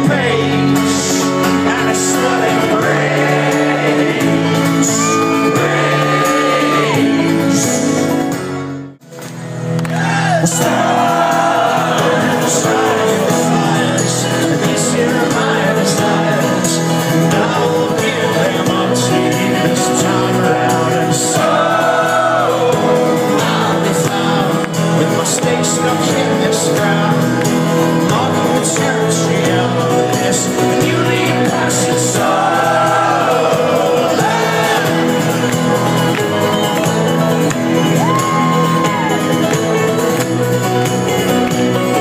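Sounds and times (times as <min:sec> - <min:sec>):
person singing: 0:00.0 - 0:08.3, 0:09.9 - 0:42.0
live folk-rock band playing: 0:00.0 - 0:42.0
crowd whooping and shouting: 0:02.9 - 0:07.8, 0:09.8 - 0:12.4, 0:32.4 - 0:40.0.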